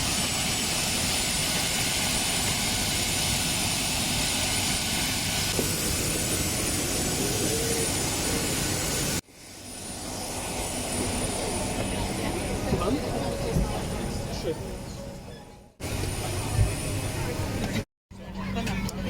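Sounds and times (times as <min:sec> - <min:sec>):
airplane cabin engine noise: 0:00.0 - 0:19.0.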